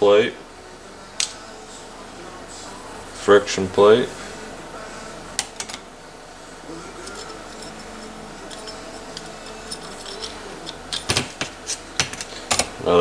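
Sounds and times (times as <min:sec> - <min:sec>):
clutch plates clicking and tapping: 0:08.4 - 0:12.8.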